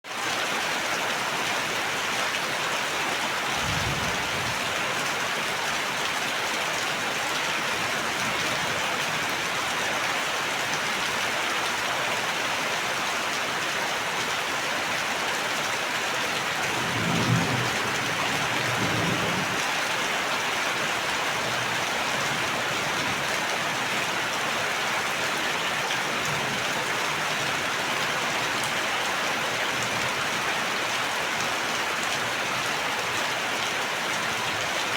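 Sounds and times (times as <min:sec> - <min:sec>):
heavy rain falling: 0:00.1 - 0:34.9
low rumble of thunder: 0:03.4 - 0:05.4.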